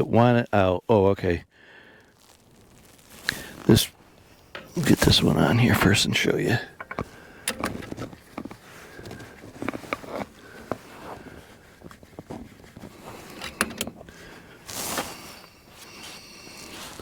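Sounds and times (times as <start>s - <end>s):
hiss-like rustle: 1.9s - 17.0s
metallic clicks of fittings handled: 4.5s - 6.0s, 6.7s - 10.8s, 13.2s - 14.1s.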